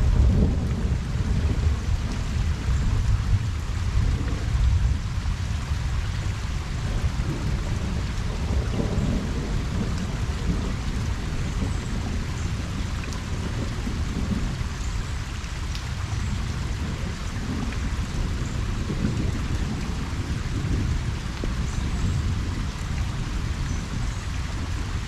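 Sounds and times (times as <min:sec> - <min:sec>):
distant thunder rumble: 0:00.0 - 0:05.2, 0:06.3 - 0:25.0
rain falling on pond: 0:00.0 - 0:25.0.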